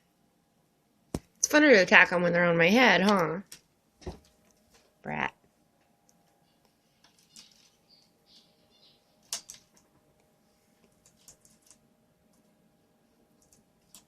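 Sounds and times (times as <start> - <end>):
bird pecking at plastic earphones: 9.2 - 10.0, 10.8 - 12.5.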